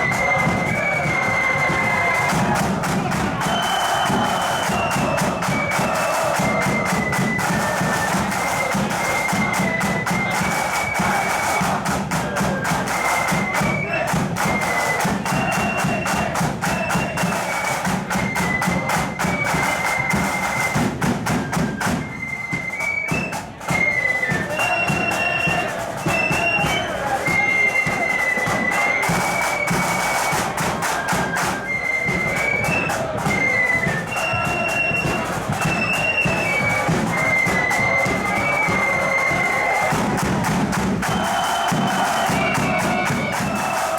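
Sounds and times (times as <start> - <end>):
high flute melody: 0.0 - 43.9
rapid side drum beats: 0.0 - 43.9
bass drum: 34.3 - 43.8.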